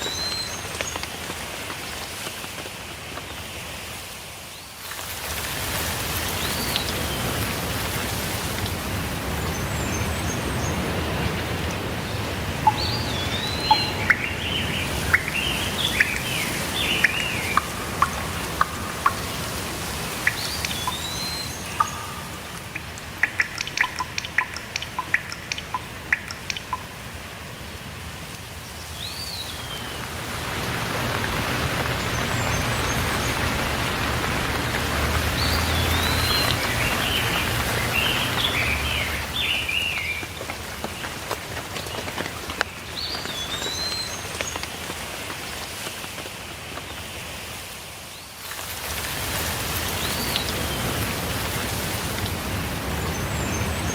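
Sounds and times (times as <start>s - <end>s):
steady rain falling: 0.0s - 53.9s
sharp drips: 4.9s - 45.8s, 48.4s - 53.9s
songbirds chirping: 6.2s - 27.0s, 28.4s - 44.7s, 52.2s - 53.9s.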